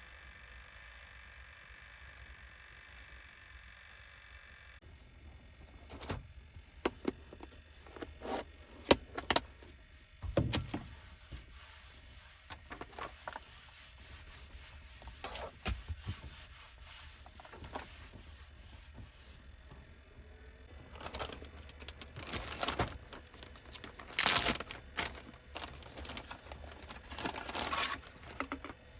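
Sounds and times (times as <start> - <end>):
objects knocking and rubbing: 21.0 - 28.8.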